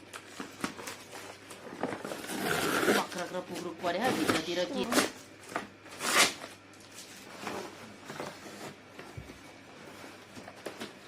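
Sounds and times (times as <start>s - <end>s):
packaging rustling: 0.0s - 3.6s.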